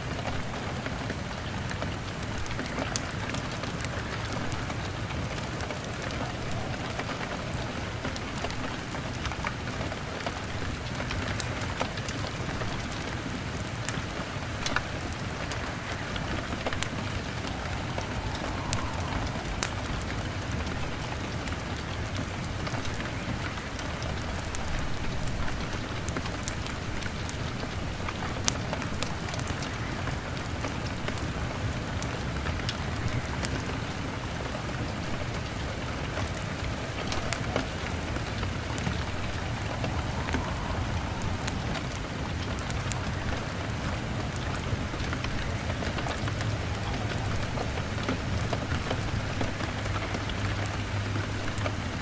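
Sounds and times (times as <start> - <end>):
log fire crackling: 0.0 - 52.0
rain on a window: 0.0 - 52.0
low rumble: 15.3 - 22.6, 36.7 - 44.1.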